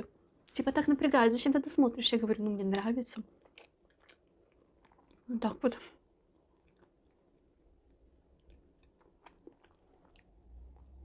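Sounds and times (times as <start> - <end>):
faint chewing mouth clicks: 3.4 - 5.3, 6.6 - 7.2, 8.3 - 11.0.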